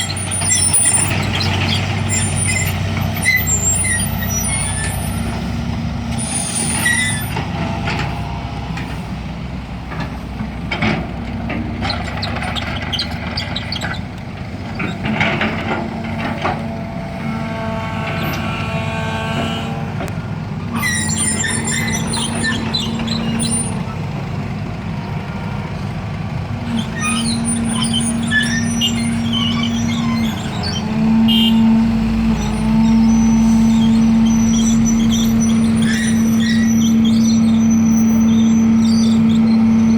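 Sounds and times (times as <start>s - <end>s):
diesel engine running: 0.0s - 39.9s
squeals and hisses: 20.8s - 23.8s, 26.8s - 31.7s, 32.4s - 39.9s.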